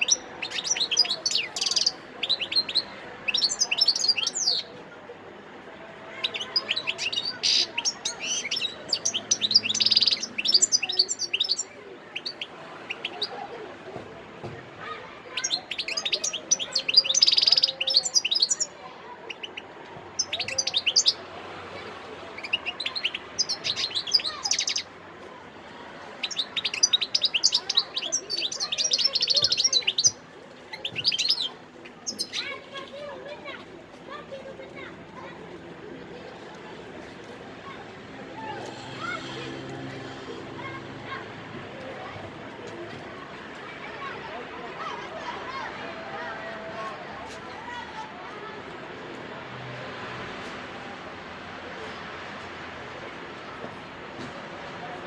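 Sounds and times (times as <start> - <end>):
goldfinch twittering song: 0.0 - 4.7, 6.2 - 13.3, 15.3 - 18.7, 26.2 - 32.5.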